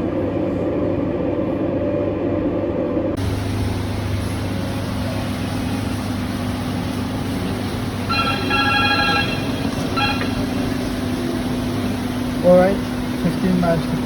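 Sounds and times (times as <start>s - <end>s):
engine room machinery hum: 0.0s - 14.0s
multi-tone signal: 8.0s - 11.2s.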